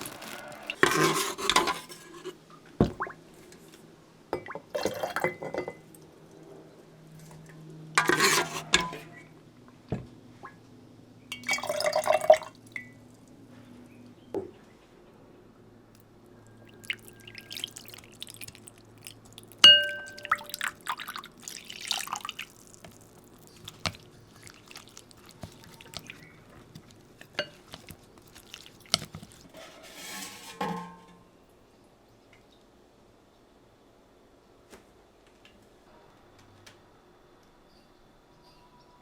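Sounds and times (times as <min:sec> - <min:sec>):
dishes knocking and clinking: 0:04.4 - 0:05.8, 0:19.7 - 0:20.5, 0:30.2 - 0:31.2
sharp ringing glass clink: 0:19.7 - 0:20.3.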